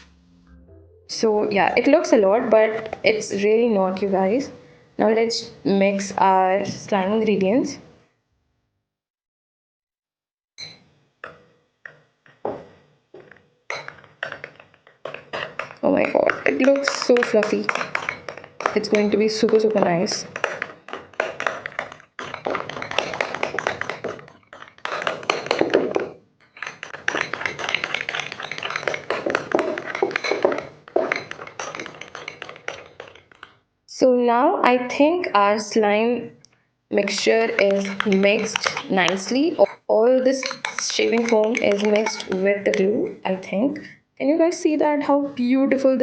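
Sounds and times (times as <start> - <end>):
utensil tapping bowl: 11.2 - 33.6, 36.9 - 43.9.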